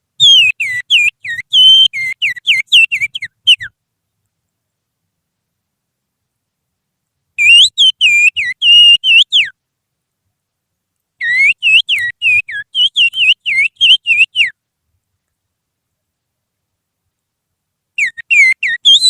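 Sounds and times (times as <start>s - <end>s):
person whistling birdsong: 0.2s - 3.7s, 18.0s - 19.0s.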